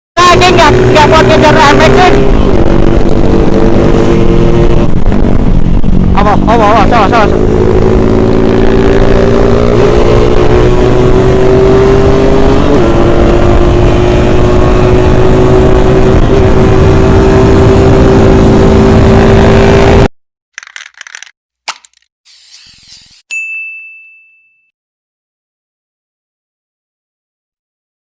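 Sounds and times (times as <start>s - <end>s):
motorcycle engine at high revs: 0.3s - 20.1s.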